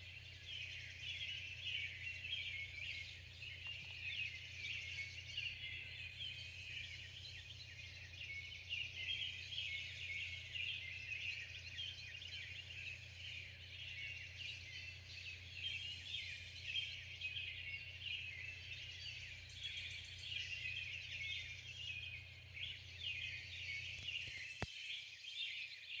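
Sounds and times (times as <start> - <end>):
low steady hum: 0.0 - 24.7
birds chirping and singing: 0.0 - 26.0.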